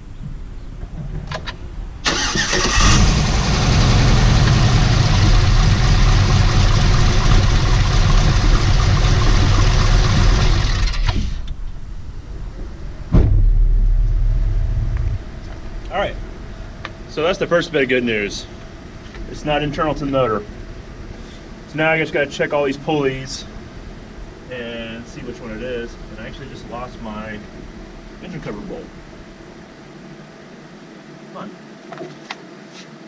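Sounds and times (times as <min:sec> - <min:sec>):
engine low rumble: 0:00.0 - 0:31.0
car engine cranking and starting: 0:01.3 - 0:11.7.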